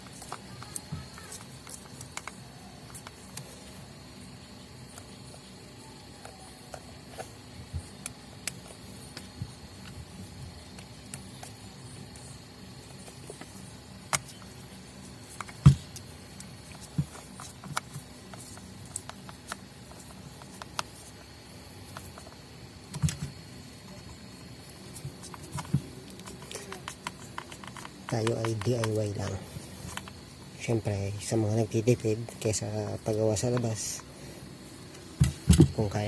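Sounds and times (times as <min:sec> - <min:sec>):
faint steady hum: 0:00.0 - 0:36.0
clicks and knocks handling sander parts: 0:35.2 - 0:35.9.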